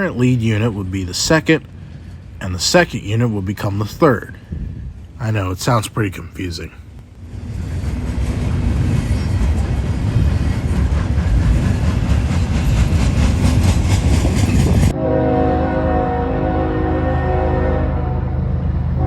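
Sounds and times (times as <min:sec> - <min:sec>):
freight train rumbling past: 0:00.0 - 0:19.0
train wheels clattering over rail joints: 0:07.3 - 0:14.9.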